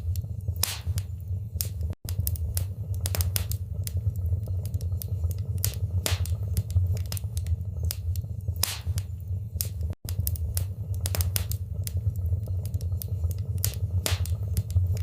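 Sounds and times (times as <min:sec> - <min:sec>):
burning logs popping and snapping: 0:00.0 - 0:15.0
low rumble of flames: 0:00.0 - 0:15.0.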